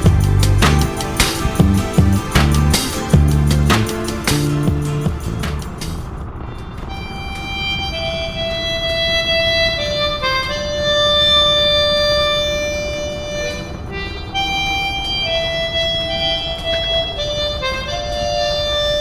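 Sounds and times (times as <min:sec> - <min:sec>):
harmonica slow melody: 0:00.0 - 0:05.9, 0:06.8 - 0:19.0
steady low rumble: 0:00.0 - 0:06.2.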